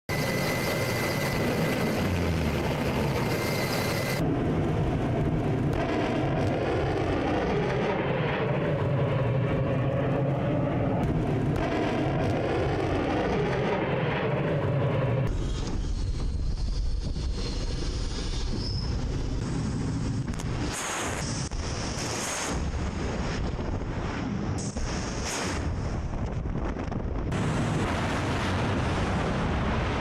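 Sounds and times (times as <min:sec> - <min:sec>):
thin steady whine: 0:00.1 - 0:04.4
rocket motors roaring: 0:00.1 - 0:30.0.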